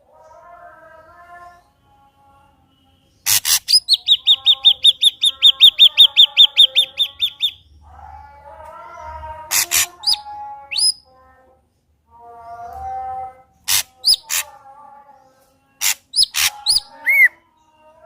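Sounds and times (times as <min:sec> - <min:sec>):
bird singing harsh notes and whistles: 0:03.2 - 0:07.7, 0:09.5 - 0:11.1, 0:13.7 - 0:14.5, 0:15.8 - 0:17.4.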